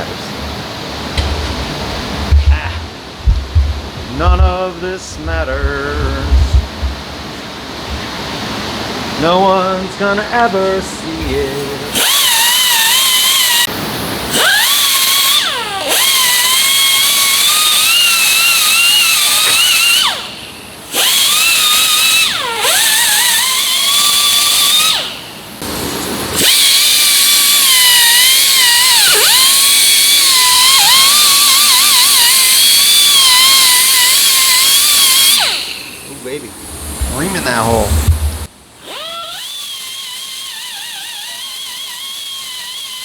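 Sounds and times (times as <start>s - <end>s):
air tool spinning with whine: 1.1s - 8.8s, 11.3s - 43.0s.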